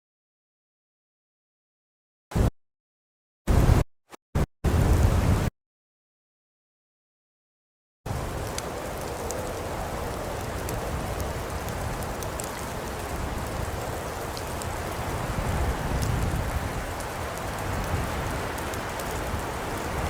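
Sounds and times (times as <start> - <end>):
fire burning in a fireplace: 8.1 - 20.0
fire crackling and popping: 8.1 - 20.0.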